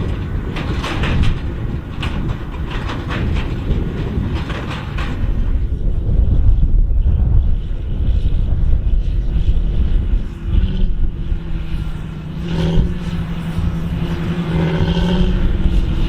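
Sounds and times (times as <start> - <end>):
tractor diesel engine droning: 0.0 - 16.0.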